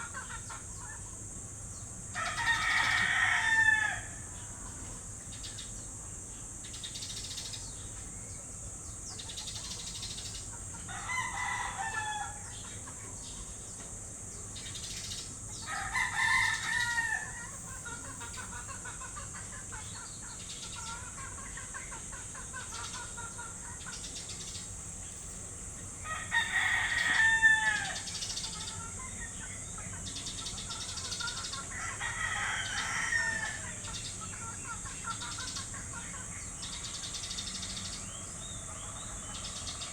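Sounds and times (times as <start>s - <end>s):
steady high hiss: 0.0s - 39.9s
rooster crowing: 2.2s - 4.4s, 10.8s - 12.6s, 15.6s - 19.3s, 26.0s - 29.3s, 31.5s - 34.0s
bird chirps: 16.4s - 25.4s, 33.6s - 39.9s.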